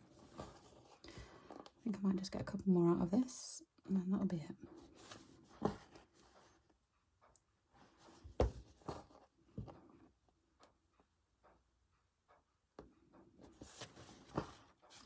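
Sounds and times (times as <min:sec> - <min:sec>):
thread and fabric rustling: 0:13.4 - 0:15.0.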